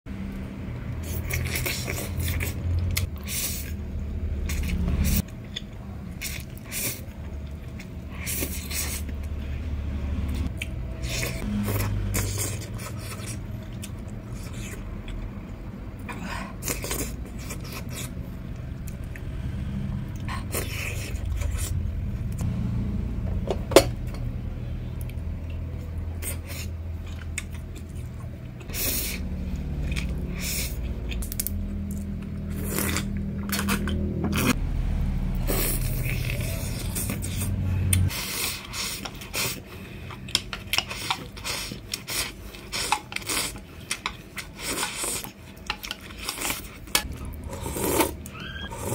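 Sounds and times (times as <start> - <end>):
low rumble: 1.7 - 5.3, 17.2 - 26.1, 26.8 - 38.1.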